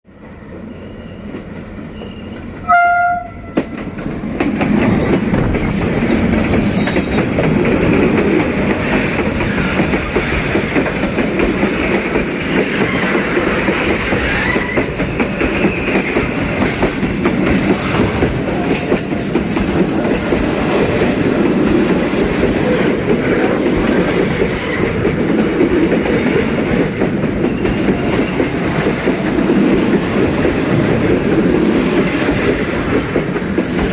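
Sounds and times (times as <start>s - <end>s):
freight train running: 0.1s - 33.9s
train horn blast: 2.6s - 3.6s
wheels clicking over rails: 3.6s - 33.9s.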